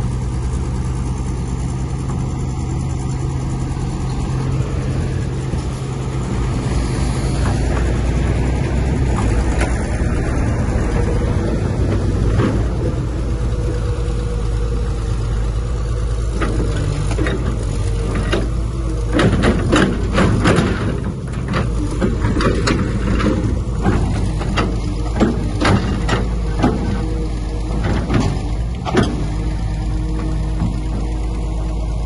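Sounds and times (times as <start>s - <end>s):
diesel machinery running: 0.0s - 32.0s
metal clanks and knocks: 16.3s - 29.4s.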